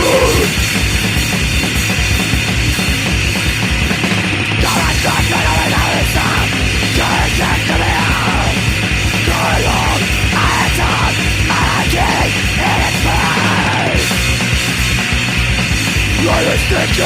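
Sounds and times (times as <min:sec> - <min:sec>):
person shouting vocals: 0:00.0 - 0:00.5, 0:04.7 - 0:08.6, 0:09.2 - 0:14.0
distorted punk guitars: 0:00.0 - 0:17.0
pounding drums: 0:00.0 - 0:17.0.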